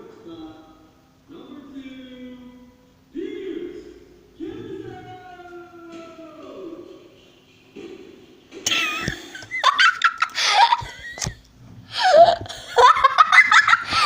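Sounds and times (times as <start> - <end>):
high-pitched laughter and squeals: 8.7 - 11.4, 12.0 - 14.0.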